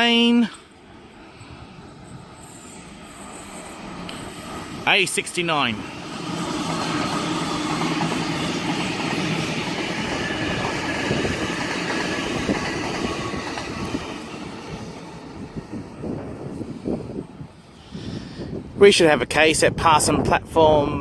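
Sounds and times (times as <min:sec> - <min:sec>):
electric train passing: 0:00.0 - 0:18.8
wheels clicking over rail joints: 0:06.0 - 0:14.6.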